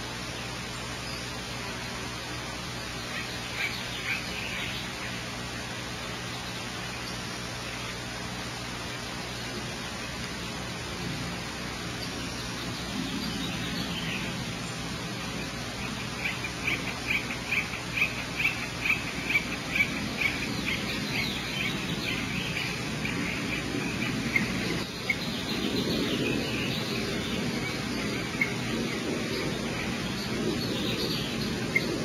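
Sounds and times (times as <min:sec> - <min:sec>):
low hum and hiss: 0:00.0 - 0:32.0
bird chirping rapidly: 0:11.6 - 0:32.0.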